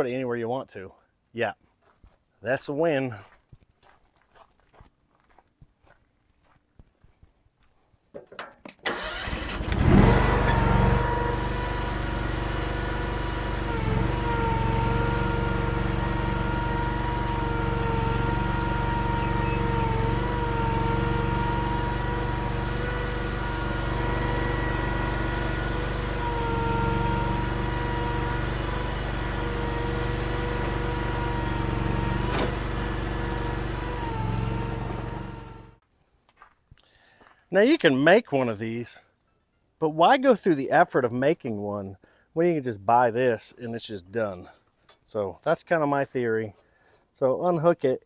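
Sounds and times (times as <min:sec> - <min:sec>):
gasoline engine running steadily: 0:08.9 - 0:35.8.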